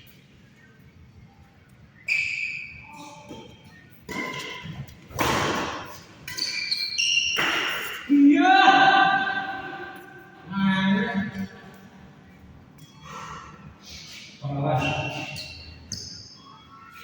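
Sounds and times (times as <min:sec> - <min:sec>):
shoes squeaking on court: 0:02.1 - 0:08.1, 0:14.0 - 0:17.0
racket hitting shuttlecock: 0:04.1 - 0:08.1
loud voice: 0:08.1 - 0:11.5.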